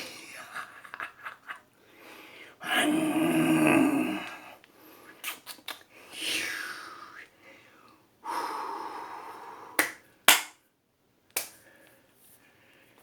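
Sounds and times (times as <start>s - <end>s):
man imitating tiger roar: 2.6s - 4.5s.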